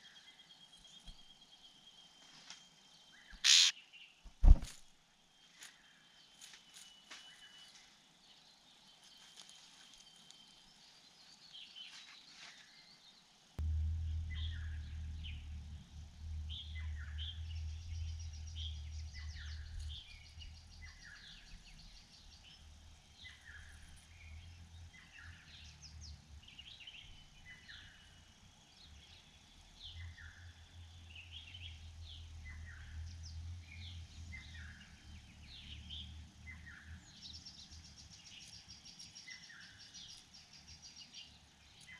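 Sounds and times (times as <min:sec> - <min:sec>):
small birds chirping: 0:00.0 - 0:04.6, 0:05.2 - 0:41.9
low rumble: 0:13.6 - 0:27.5.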